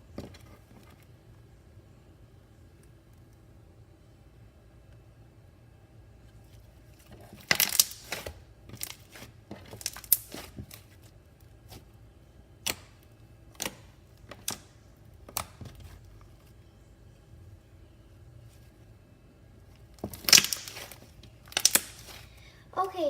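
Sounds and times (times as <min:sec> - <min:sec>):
slime squishing with pops: 0:07.0 - 0:11.1, 0:19.9 - 0:22.3.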